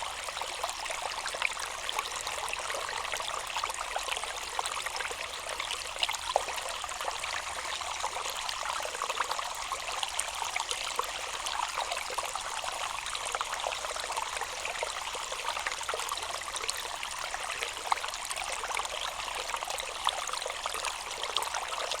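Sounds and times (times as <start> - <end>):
water trickling and splashing: 0.0 - 22.0.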